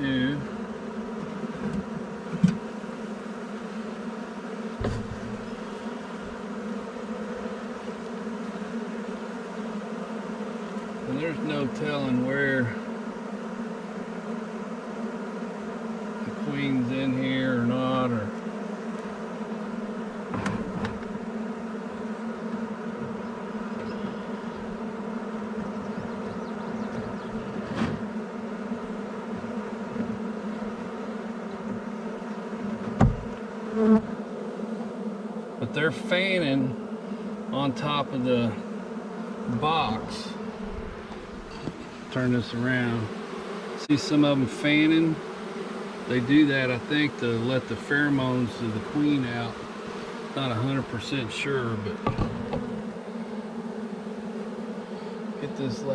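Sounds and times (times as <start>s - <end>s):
honeybees buzzing: 0.0s - 55.9s
dull knock: 4.8s - 5.4s, 32.8s - 33.4s, 52.0s - 52.7s.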